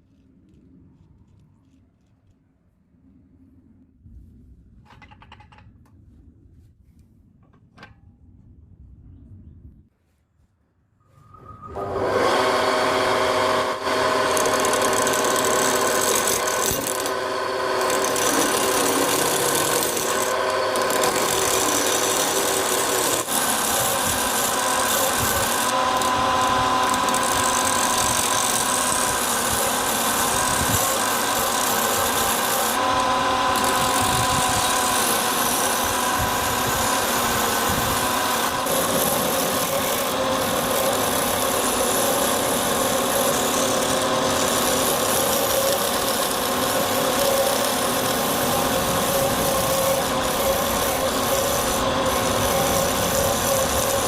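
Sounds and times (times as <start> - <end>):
tool scraping spinning wood: 11.3 - 54.0
wood lathe running: 11.7 - 54.0.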